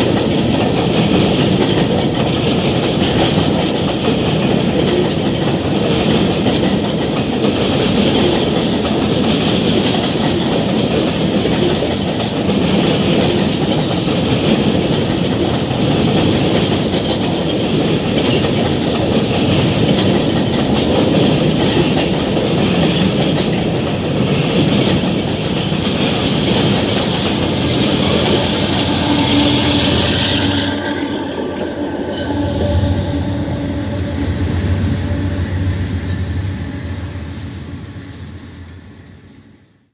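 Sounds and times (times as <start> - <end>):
freight train wheels clattering on rail: 0.0 - 37.7
low hum: 28.8 - 38.4.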